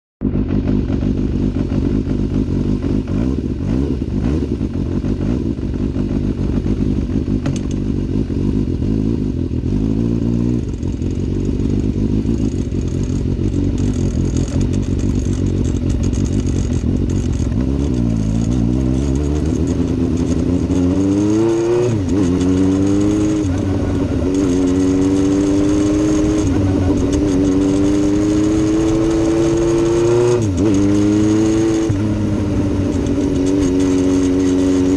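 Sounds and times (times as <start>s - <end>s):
vehicle engine running: 0.2s - 34.9s
rattle: 10.6s - 34.9s.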